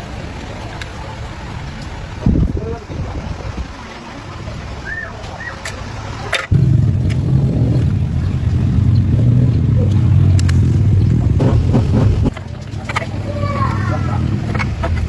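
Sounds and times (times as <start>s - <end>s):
small motorcycle engine running: 6.5s - 15.0s
clicks: 8.9s - 13.1s.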